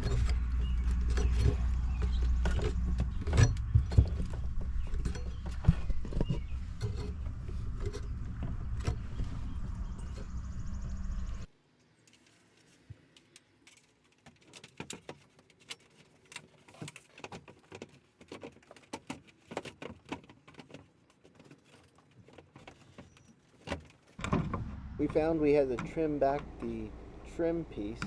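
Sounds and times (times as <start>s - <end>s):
plastic and metal parts clicking: 12.0s - 24.2s.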